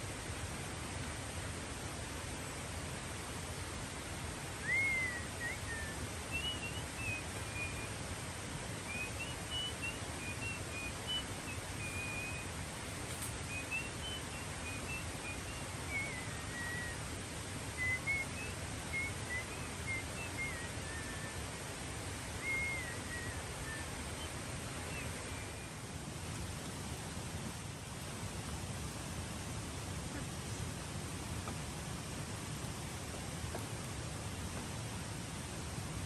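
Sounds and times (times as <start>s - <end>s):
background hiss: 0.0s - 36.0s
bird whistling song: 4.6s - 8.0s, 8.8s - 17.1s, 17.7s - 21.6s, 22.3s - 25.8s.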